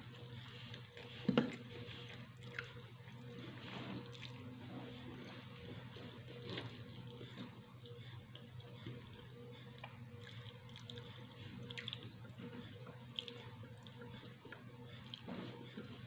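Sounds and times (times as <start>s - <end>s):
steady low hum: 0.0s - 16.0s
person chewing: 10.2s - 12.1s, 12.8s - 14.0s.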